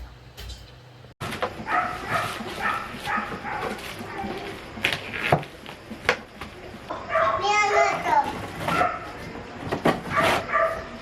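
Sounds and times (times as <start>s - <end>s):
dog yipping: 1.7s - 4.4s, 7.1s - 7.4s, 8.7s - 9.1s, 10.1s - 11.0s.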